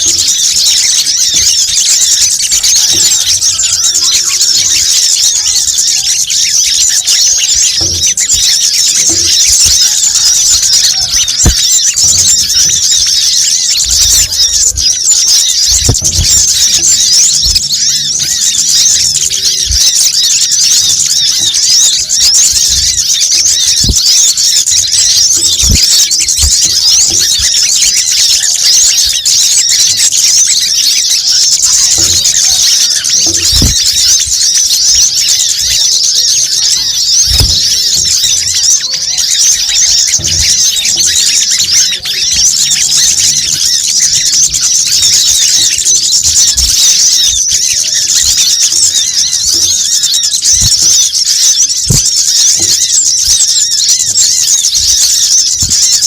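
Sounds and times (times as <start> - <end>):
small birds chattering: 0.0 - 56.0
soft low thumps: 10.6 - 18.4, 37.2 - 38.6.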